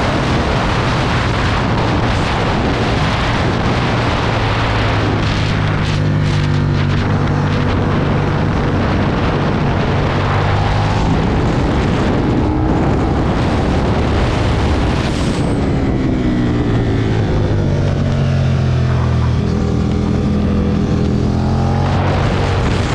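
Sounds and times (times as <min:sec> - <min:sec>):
motorcycle engine accelerating: 0:00.0 - 0:22.9
wind rush: 0:00.0 - 0:22.9.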